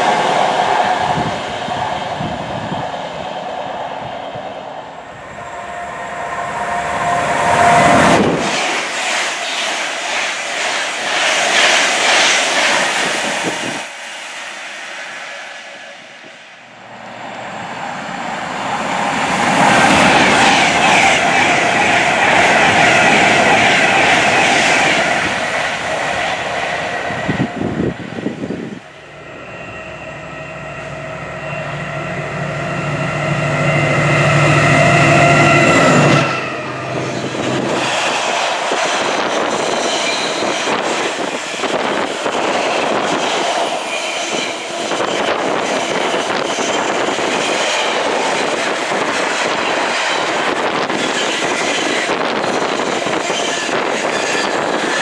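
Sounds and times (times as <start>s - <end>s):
electric train rushing past: 0.0s - 55.0s
locomotive engine note: 28.9s - 37.7s.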